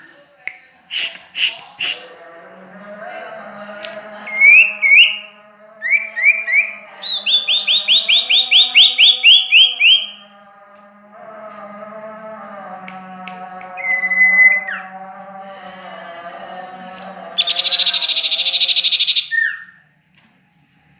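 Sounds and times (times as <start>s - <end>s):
songbird singing: 4.2s - 10.4s, 13.8s - 15.3s, 17.4s - 19.8s.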